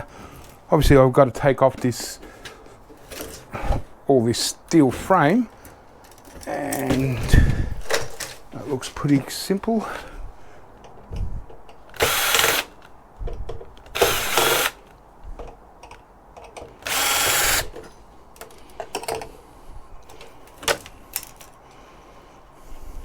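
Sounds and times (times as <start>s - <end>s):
parts clicking and knocking: 10.8s - 19.4s, 20.0s - 21.6s
cordless drill running: 11.9s - 12.9s, 13.9s - 14.8s, 16.8s - 17.8s.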